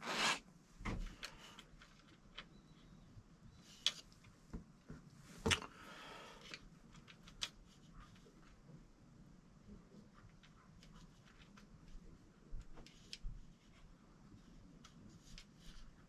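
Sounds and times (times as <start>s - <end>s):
soft rustle: 9.7s - 16.0s.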